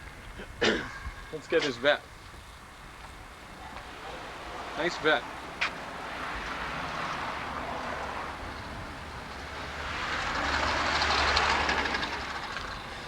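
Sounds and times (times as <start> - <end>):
vehicle passing by: 3.9 - 13.0.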